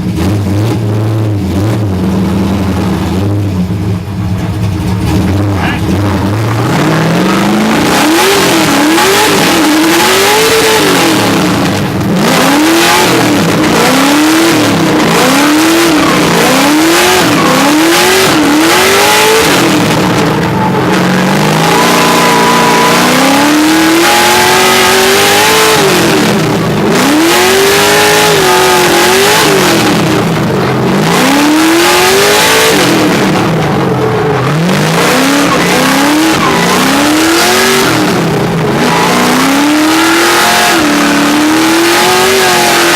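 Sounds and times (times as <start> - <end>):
car engine revving hard: 0.0 - 42.9.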